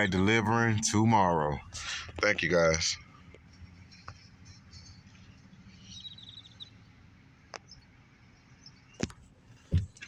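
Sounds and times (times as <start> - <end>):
faint background hum: 0.0 - 10.0
bird chirping trill: 3.8 - 6.9.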